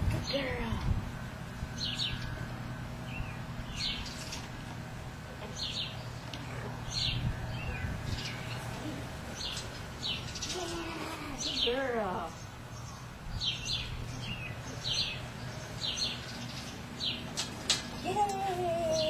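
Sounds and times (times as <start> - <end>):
low background hum: 0.0 - 19.0
bird chirping: 1.7 - 4.8, 5.4 - 19.0.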